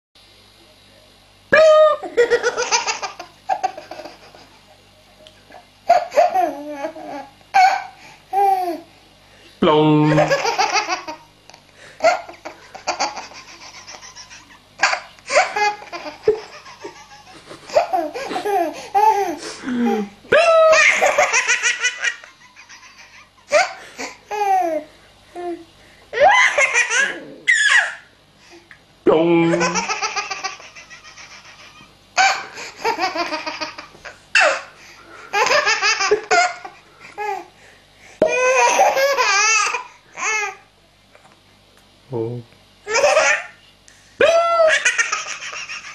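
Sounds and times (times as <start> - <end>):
baby laughing: 1.6 - 4.6, 5.9 - 8.9, 10.1 - 24.9, 26.2 - 28.0, 29.5 - 34.7, 35.3 - 37.5, 38.2 - 40.6, 42.9 - 43.6, 44.5 - 45.9.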